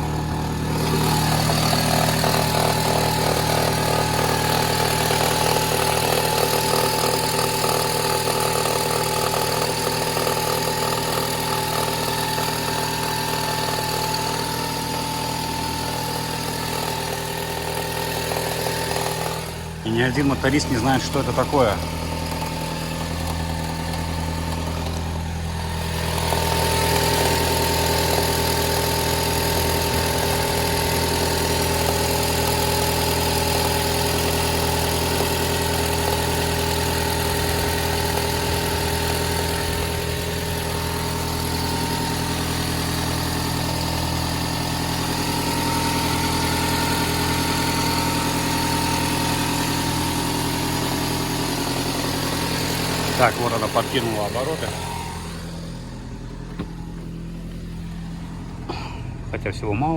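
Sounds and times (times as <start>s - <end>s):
car engine idling: 0.0s - 59.9s
crackle in engine: 21.9s - 53.4s.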